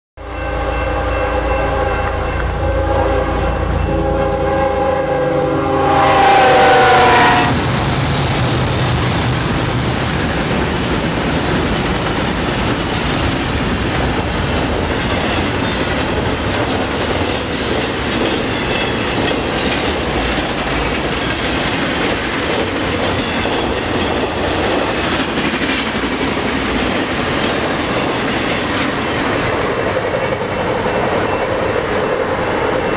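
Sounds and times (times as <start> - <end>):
steel wheels rushing on rail: 0.2 - 32.9
locomotives passing: 0.5 - 32.9
wheels clickety-clack: 8.1 - 32.3.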